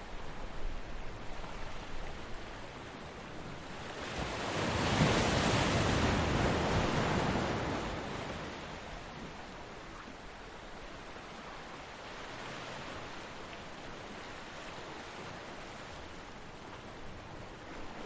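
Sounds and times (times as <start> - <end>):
ocean wave breaking: 3.9 - 8.8.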